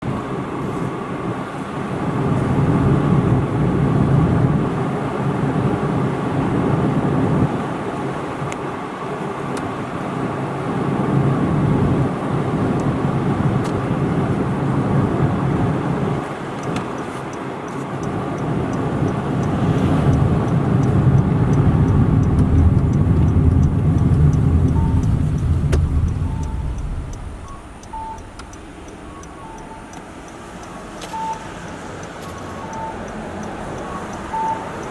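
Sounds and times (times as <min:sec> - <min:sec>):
car road and engine noise: 0:00.0 - 0:34.9
soft beep: 0:23.6 - 0:31.8, 0:32.4 - 0:34.9.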